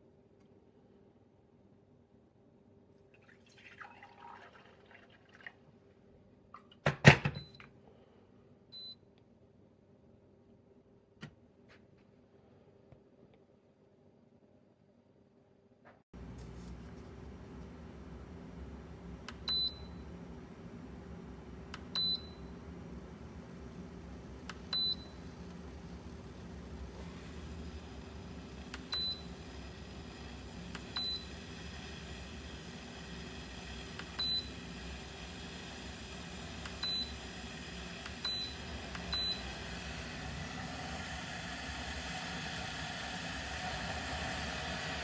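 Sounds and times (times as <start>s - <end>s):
kettle beeping: 21.7s - 22.6s, 24.5s - 25.4s, 27.0s - 41.0s.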